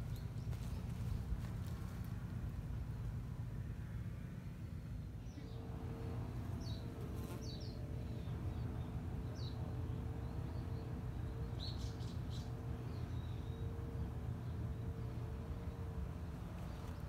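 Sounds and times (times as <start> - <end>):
low background hum: 0.0 - 17.0
small birds chirping: 6.5 - 15.8.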